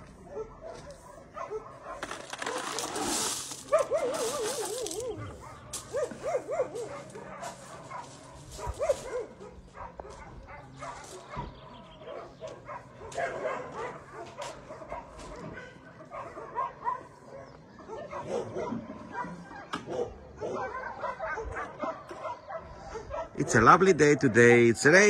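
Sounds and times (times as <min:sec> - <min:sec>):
dogs barking and yipping: 0:00.0 - 0:25.0
dogs whining: 0:03.7 - 0:07.5.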